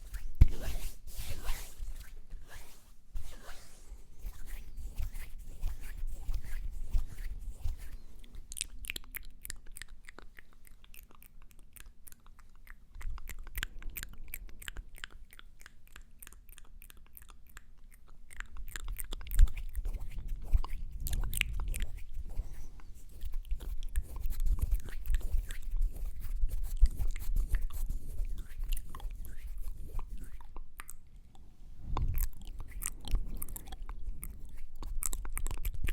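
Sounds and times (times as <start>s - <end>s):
mouth clicks and smacks: 4.6s - 35.9s.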